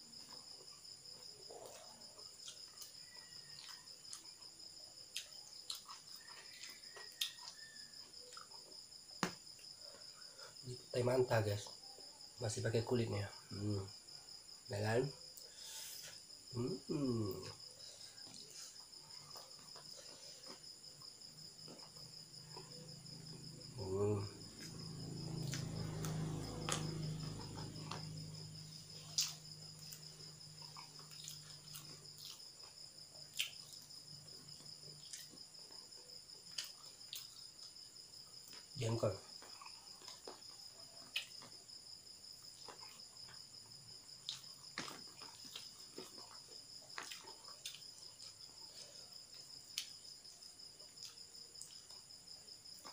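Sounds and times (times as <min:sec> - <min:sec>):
crickets chirping: 0:00.0 - 0:52.9
chewing clicks and smacks: 0:28.9 - 0:33.9, 0:36.4 - 0:37.8, 0:39.4 - 0:41.6, 0:44.2 - 0:48.5, 0:49.7 - 0:50.0.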